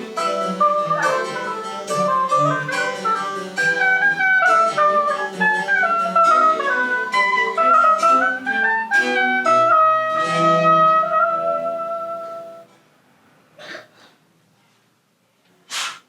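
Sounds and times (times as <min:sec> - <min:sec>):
plucked string accompaniment: 0:00.0 - 0:12.7
woodwind melody: 0:00.0 - 0:12.7.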